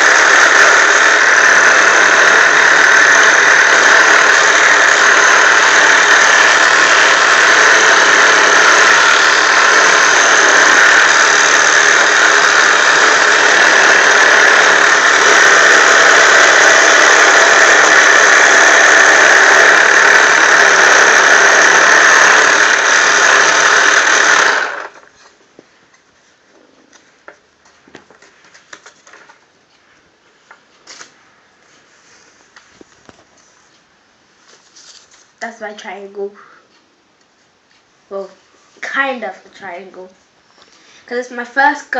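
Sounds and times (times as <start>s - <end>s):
toy jigsaw motor running: 0.0s - 25.1s.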